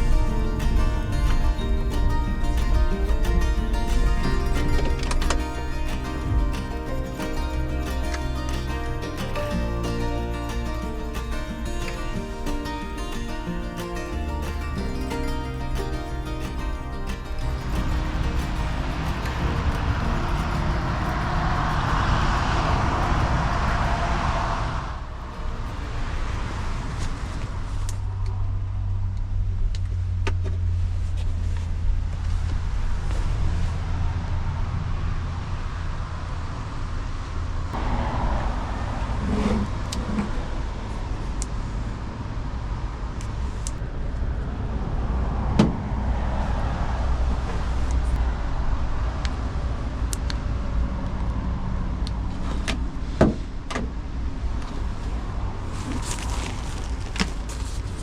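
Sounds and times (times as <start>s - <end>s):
van engine running: 0.0s - 24.2s.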